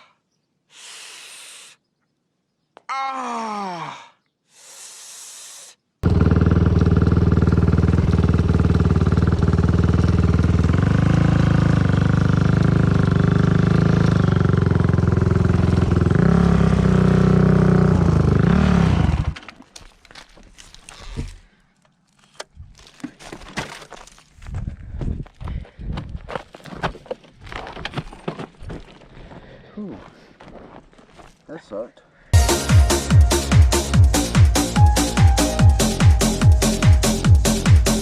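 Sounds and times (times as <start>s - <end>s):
dirt bike engine idling: 6.0s - 19.4s.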